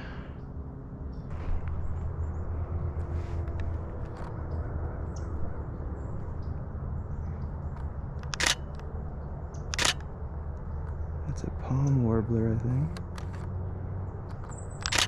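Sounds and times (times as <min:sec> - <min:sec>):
low background rumble: 0:00.0 - 0:15.0
camera shutter firing in bursts: 0:08.2 - 0:08.8, 0:09.7 - 0:10.1.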